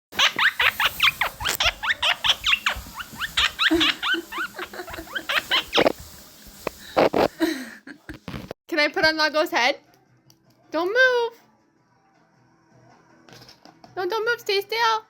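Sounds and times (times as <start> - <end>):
parrot chattering shrill chirps: 0.2 - 6.0.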